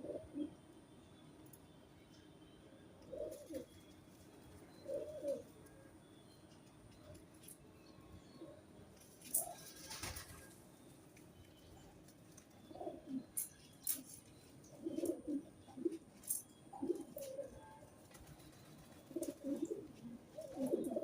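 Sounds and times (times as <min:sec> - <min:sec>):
pigeons cooing: 0:00.0 - 0:00.6, 0:03.0 - 0:03.7, 0:04.8 - 0:05.6, 0:12.6 - 0:13.4, 0:14.7 - 0:21.0.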